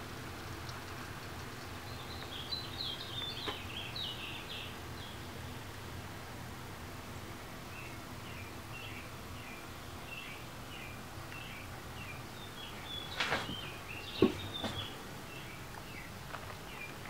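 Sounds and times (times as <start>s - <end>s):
bird chirping: 0.4s - 5.5s, 7.7s - 17.0s
scuffs and knocks: 13.1s - 14.9s.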